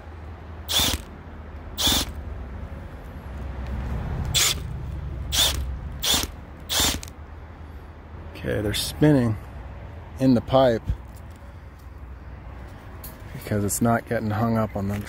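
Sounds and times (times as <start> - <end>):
drain auger motor hum: 0.7 - 1.1, 1.8 - 2.1, 4.3 - 4.6, 5.3 - 7.1.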